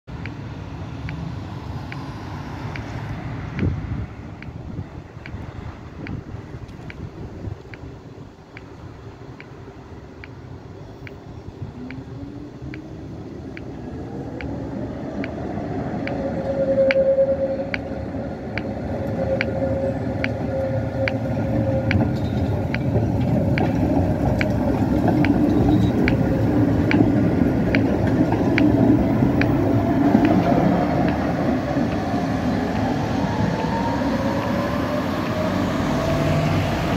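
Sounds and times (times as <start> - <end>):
tram motors whining: 0.1 - 36.9
tram wheels squealing: 10.8 - 36.9
regular clicking: 11.0 - 15.4, 16.0 - 32.1.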